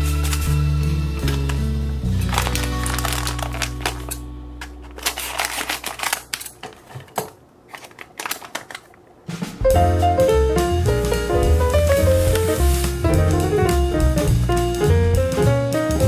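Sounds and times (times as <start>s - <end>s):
paper pouch crinkling: 0.0s - 0.5s, 2.2s - 9.0s, 11.9s - 13.1s
background music: 0.0s - 6.1s, 9.3s - 16.0s
scissors cutting paper: 4.9s - 7.0s.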